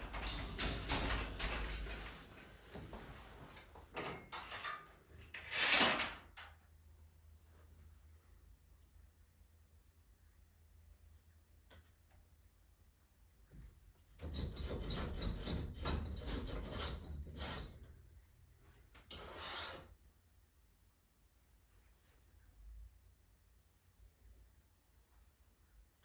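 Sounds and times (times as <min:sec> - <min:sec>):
rough rasping scrapes: 0:14.4 - 0:17.8.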